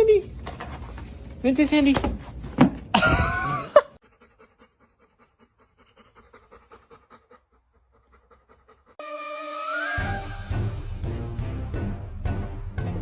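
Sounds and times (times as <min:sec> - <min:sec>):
dog panting: 0:04.0 - 0:09.0
music: 0:09.0 - 0:13.0.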